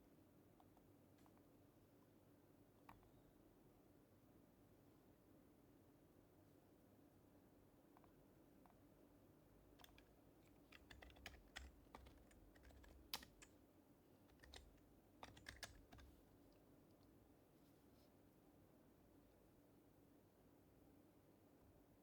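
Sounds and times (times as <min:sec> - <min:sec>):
faint keyboard typing: 0:09.7 - 0:13.6, 0:14.2 - 0:17.2.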